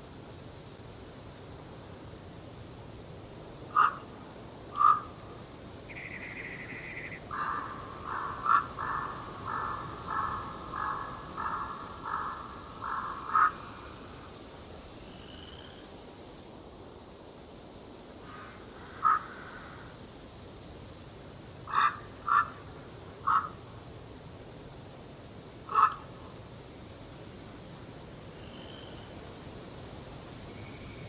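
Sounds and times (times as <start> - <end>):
faint forest hiss: 0.0 - 31.0
bird calling harshly: 3.8 - 4.0, 4.8 - 5.1, 5.9 - 13.7, 21.7 - 22.6, 23.2 - 23.6, 25.7 - 26.0.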